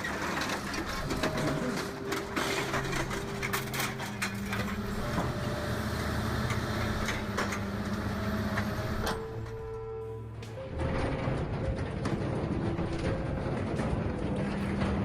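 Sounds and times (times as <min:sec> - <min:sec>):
metal cracking and crunching: 0:00.0 - 0:05.5, 0:10.4 - 0:15.0
engine and hydraulic hum: 0:00.0 - 0:15.0.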